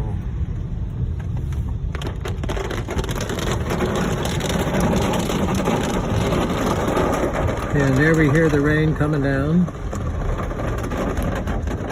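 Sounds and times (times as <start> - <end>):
car rumbling on the road: 0.0 - 11.9
rain on a car: 0.0 - 11.9.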